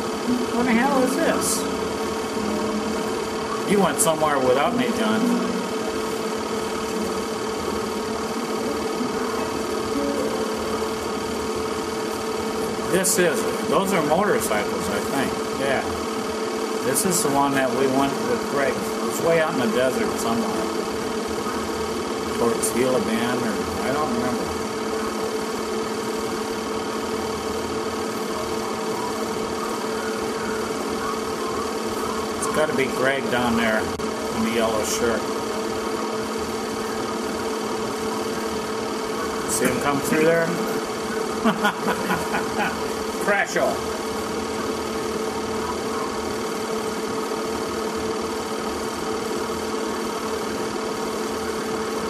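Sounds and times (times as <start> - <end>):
steady mechanical hum: 0.0 - 52.0.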